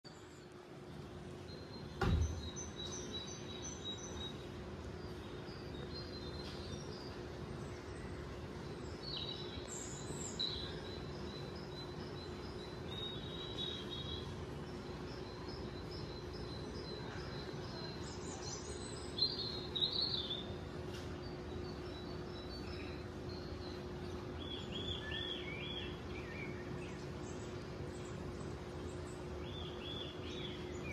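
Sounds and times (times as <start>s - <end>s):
small birds chirping: 0.0s - 30.9s
low steady hum: 0.1s - 30.9s
thump: 2.0s - 2.5s.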